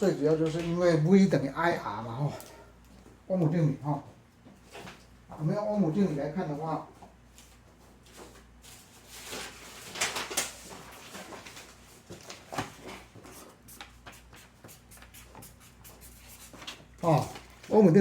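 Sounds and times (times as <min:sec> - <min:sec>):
pen scratching on paper: 0:13.7 - 0:16.6.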